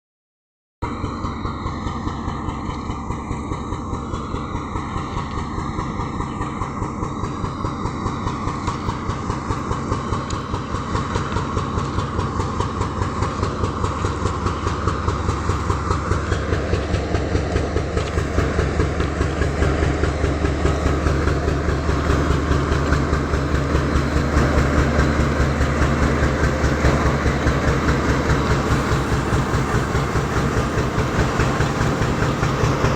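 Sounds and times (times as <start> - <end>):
diesel locomotive engine running: 0.8 - 32.9
turbocharger whine: 0.8 - 32.9.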